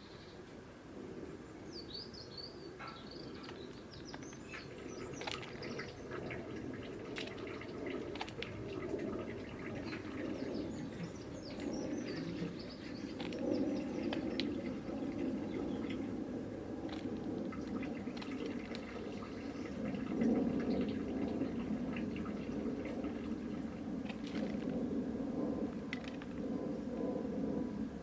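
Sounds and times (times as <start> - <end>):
low background rumble: 0.0 - 28.0
birds chirping: 1.6 - 16.2.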